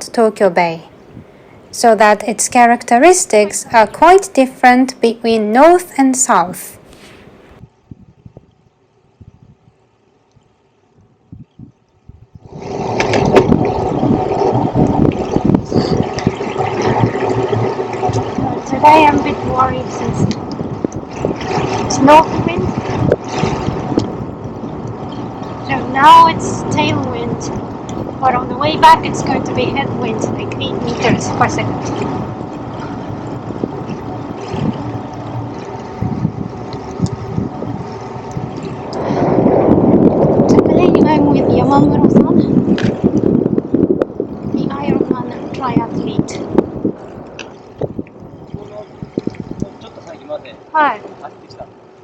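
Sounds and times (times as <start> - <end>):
wind buffeting microphone: 0.0 - 9.8, 10.4 - 52.0.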